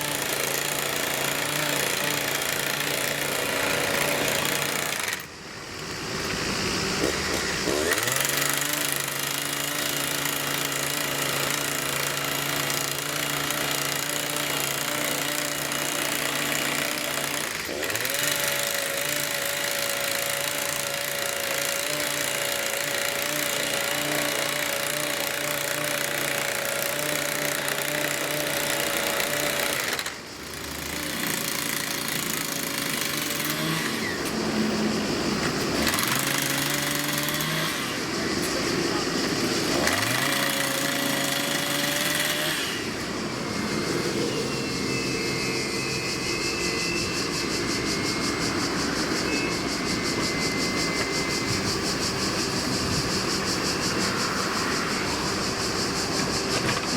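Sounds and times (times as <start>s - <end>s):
excavator engine and hydraulics: 0.0s - 56.9s
bright rattling hiss: 30.0s - 56.9s.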